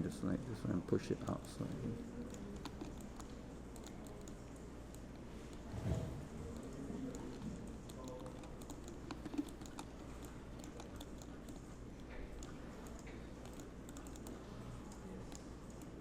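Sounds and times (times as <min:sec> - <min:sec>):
steady low hum: 0:00.0 - 0:16.0
computer keyboard keystrokes: 0:02.2 - 0:05.1, 0:06.5 - 0:16.0.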